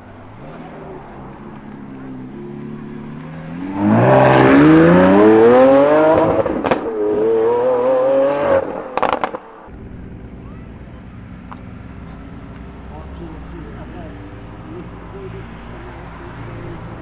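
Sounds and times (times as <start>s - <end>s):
car engine accelerating hard: 0.0s - 17.0s
exhaust pops and crackles: 9.0s - 12.8s.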